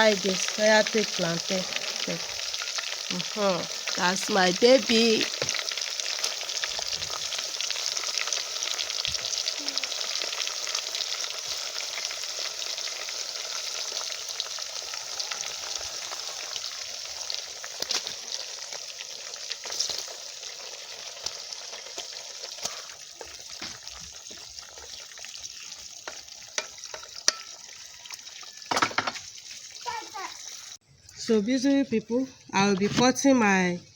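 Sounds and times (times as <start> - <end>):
oil crackling: 0.0 - 30.8
plantain sizzling in oil: 0.0 - 33.8.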